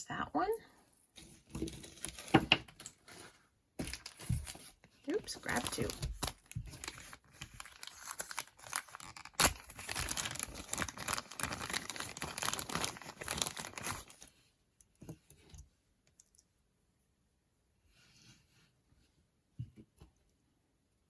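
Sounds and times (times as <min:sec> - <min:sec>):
faint handling sounds: 0:00.5 - 0:20.6
packaging crinkling: 0:01.6 - 0:02.4, 0:03.8 - 0:14.3.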